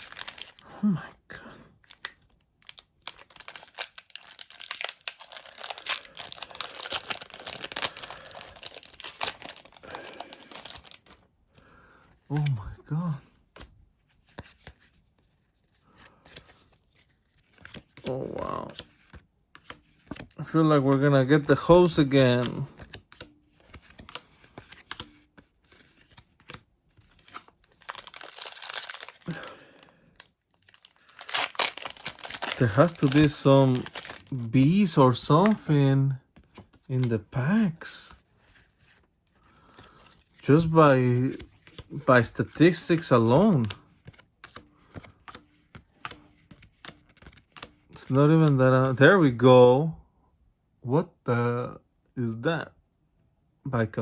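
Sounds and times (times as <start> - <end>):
foil wrapper crinkling and tearing: 0.0 - 0.7, 1.8 - 11.2, 27.0 - 35.6.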